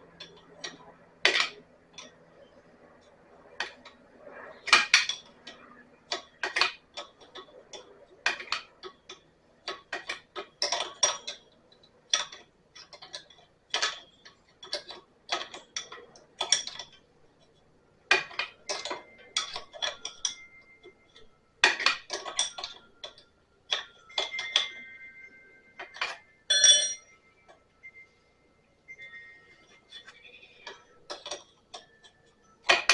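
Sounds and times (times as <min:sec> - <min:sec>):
hand tools clinking on metal fittings: 0:04.7 - 0:17.0, 0:18.1 - 0:25.0, 0:25.8 - 0:27.6, 0:29.0 - 0:32.9
metal clank: 0:25.8 - 0:27.0.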